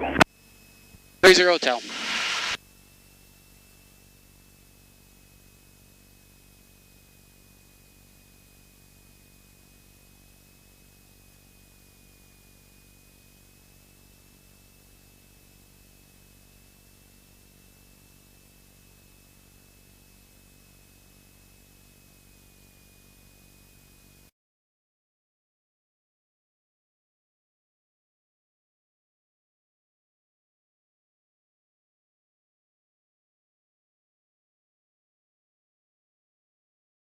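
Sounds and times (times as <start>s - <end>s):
faint steady hiss: 1.2s - 2.6s
low hum: 1.2s - 2.6s
thin high whine: 1.2s - 2.6s.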